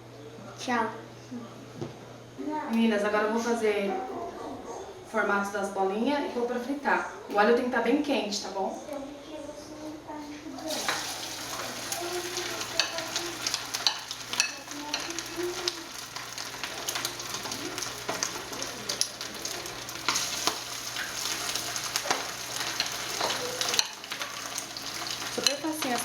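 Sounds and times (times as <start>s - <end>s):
meatballs sizzling in hot oil: 10.6s - 26.0s
oil crackling and popping: 10.6s - 26.0s.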